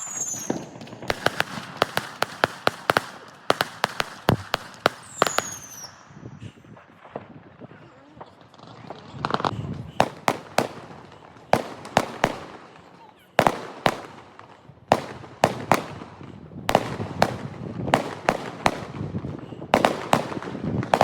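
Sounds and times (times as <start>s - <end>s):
fireworks bangs: 0.0s - 21.0s.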